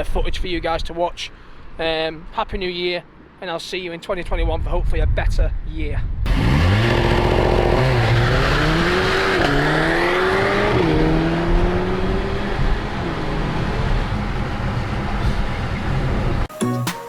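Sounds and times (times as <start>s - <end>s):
car engine accelerating: 6.3s - 16.5s.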